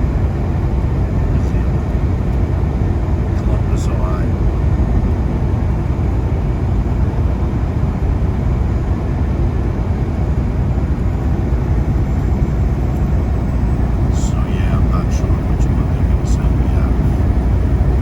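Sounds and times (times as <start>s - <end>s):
truck engine and road drone: 0.0s - 18.0s.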